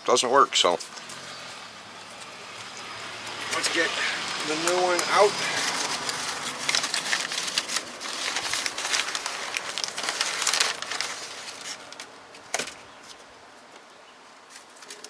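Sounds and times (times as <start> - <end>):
cardboard and plastic rustling: 3.5 - 13.8, 14.5 - 15.0.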